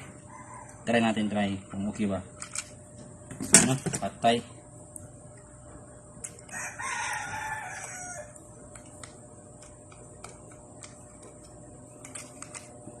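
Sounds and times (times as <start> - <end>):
rooster crowing: 0.1 - 1.0, 6.5 - 8.5.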